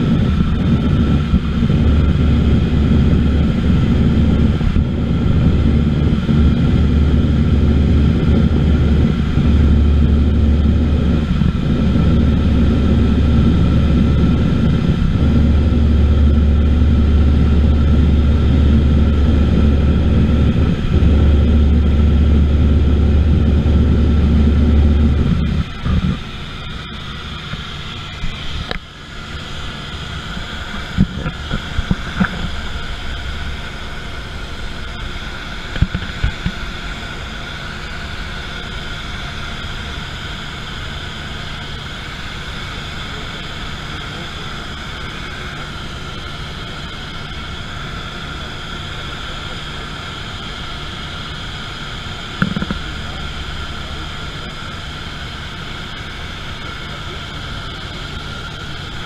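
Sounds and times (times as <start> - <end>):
low bumps: 0.0 - 28.9
airplane propeller engine droning: 0.0 - 59.0.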